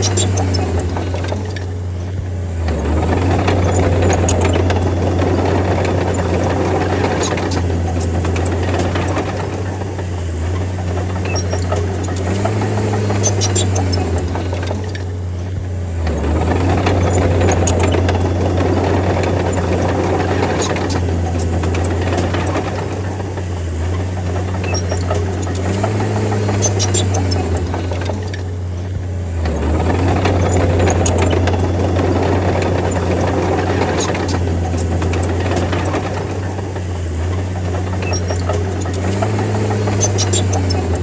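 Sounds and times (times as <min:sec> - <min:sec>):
bulldozer diesel engine droning: 0:00.0 - 0:41.0
sharp clicks: 0:24.2 - 0:36.9.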